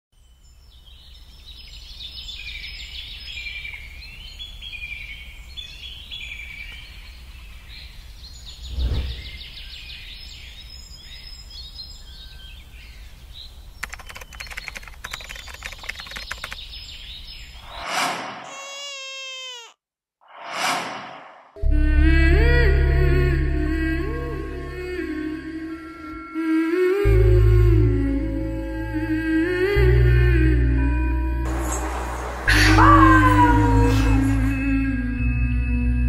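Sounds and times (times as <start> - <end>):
birds chirping and singing: 0.5 - 17.7, 31.5 - 34.8
whoosh: 8.6 - 9.5, 20.3 - 21.6
rapid clicking: 13.8 - 16.7.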